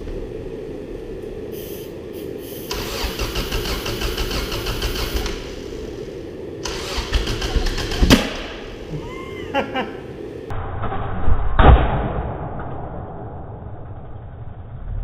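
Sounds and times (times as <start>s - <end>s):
steady low hum: 0.0s - 15.0s
starter motor cranking: 2.7s - 5.6s, 6.6s - 8.4s.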